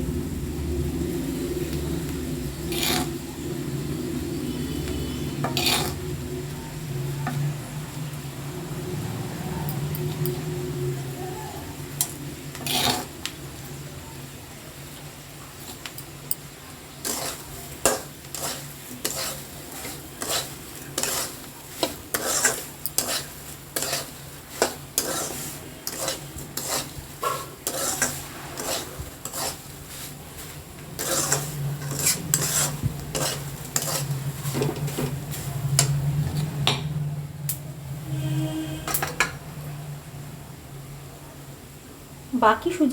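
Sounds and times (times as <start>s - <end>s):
steady low hum: 0.0s - 14.4s
spatula scraping a metal pan: 2.5s - 3.3s, 3.9s - 6.3s, 12.0s - 13.3s, 17.0s - 36.4s.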